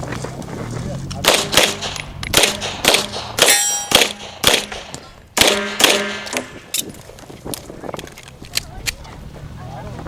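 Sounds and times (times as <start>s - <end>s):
pistol shots: 1.2s - 6.8s
steel targets clanging: 1.3s - 6.8s.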